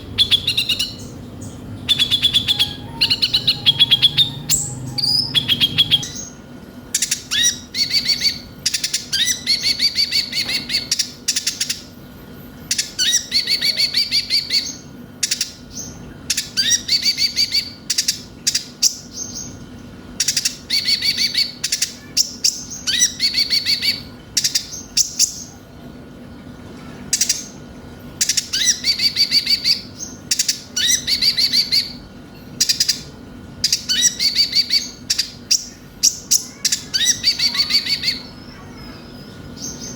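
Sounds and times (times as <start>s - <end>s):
sunbird trilled chattering: 0.0s - 6.4s, 32.6s - 39.9s
faint steady hum: 0.0s - 39.9s.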